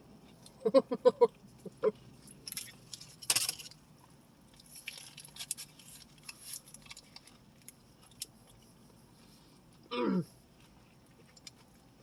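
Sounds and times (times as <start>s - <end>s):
soft chewing: 0.1s - 0.6s, 3.8s - 12.0s.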